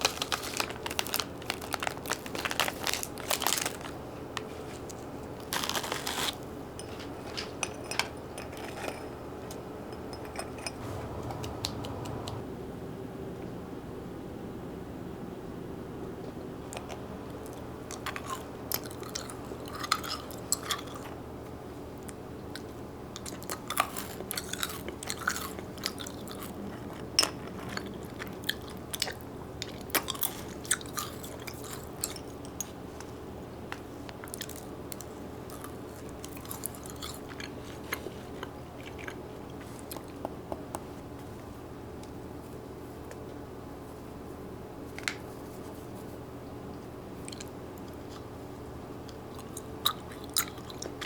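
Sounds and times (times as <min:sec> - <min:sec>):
low hum: 0:10.7 - 0:13.1
chewing crunchy food: 0:16.8 - 0:21.2, 0:22.6 - 0:33.2, 0:34.1 - 0:40.2, 0:47.2 - 0:48.4, 0:49.0 - 0:51.0.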